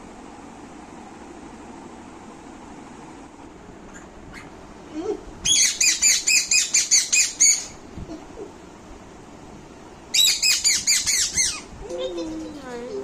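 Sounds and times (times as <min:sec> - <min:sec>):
parrot shrill calls: 0:05.4 - 0:07.8, 0:10.1 - 0:11.7.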